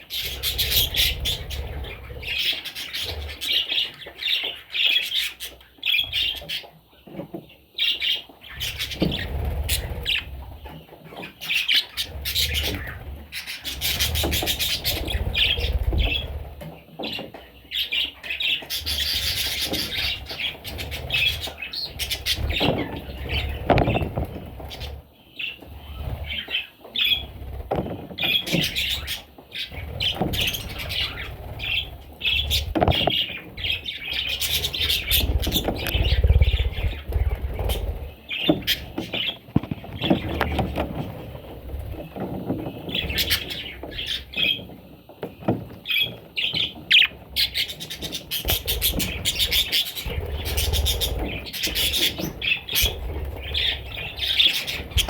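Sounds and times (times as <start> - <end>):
budgerigars chirping and squawking: 0.0 - 44.8, 45.4 - 55.0.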